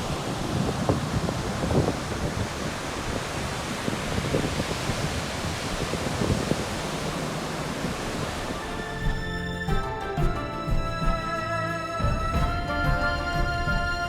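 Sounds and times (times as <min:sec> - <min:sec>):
surf breaking on a beach: 0:00.0 - 0:11.2
wind buffeting microphone: 0:00.0 - 0:14.0
music: 0:08.6 - 0:14.0.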